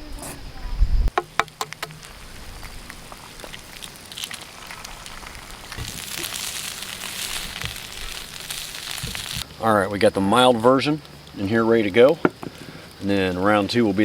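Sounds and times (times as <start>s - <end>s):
campfire crackling: 1.1s - 14.0s
food sizzling in a pan: 1.2s - 9.5s.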